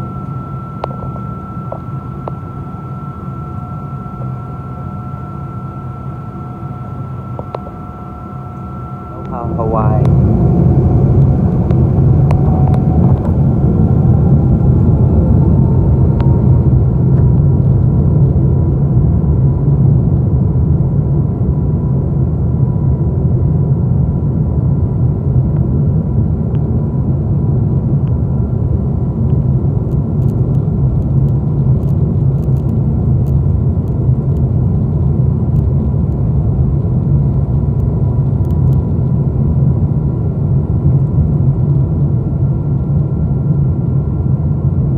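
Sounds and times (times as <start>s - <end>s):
jet engine whine: 0.0s - 44.9s
takeoff roll rumble: 7.4s - 18.7s.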